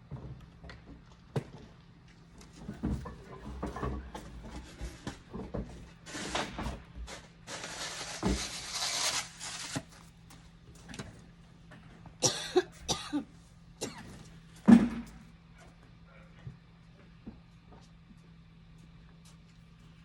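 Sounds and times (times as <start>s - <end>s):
rustling: 7.5s - 10.1s
person coughing: 12.2s - 14.2s.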